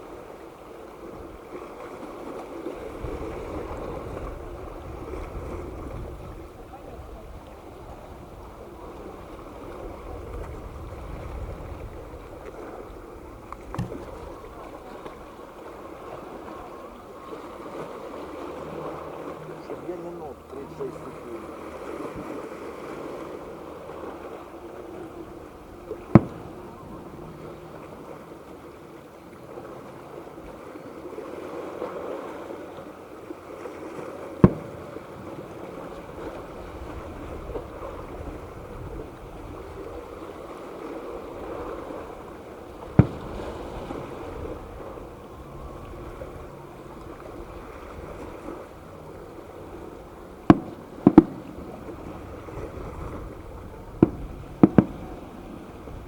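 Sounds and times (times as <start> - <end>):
background rush of noise: 2.4 - 56.0
fireworks bangs: 25.9 - 27.5, 34.4 - 36.3, 42.8 - 44.6, 50.4 - 52.9, 53.6 - 56.0.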